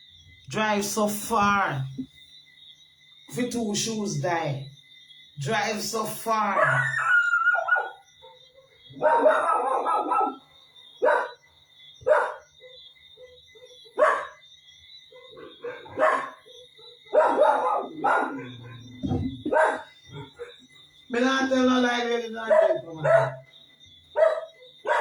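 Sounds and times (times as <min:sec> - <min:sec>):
dog barking: 0:06.6 - 0:14.5, 0:15.1 - 0:20.7, 0:22.4 - 0:23.5, 0:24.1 - 0:25.0.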